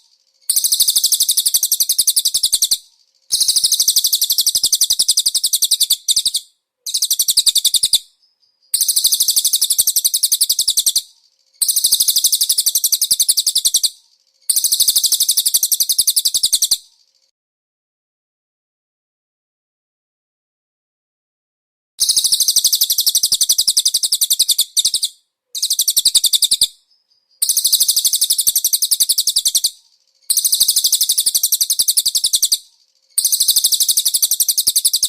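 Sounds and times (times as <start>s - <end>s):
bird trilling: 0.0s - 8.0s, 8.8s - 16.8s, 22.0s - 26.7s, 27.4s - 32.6s, 33.2s - 35.0s.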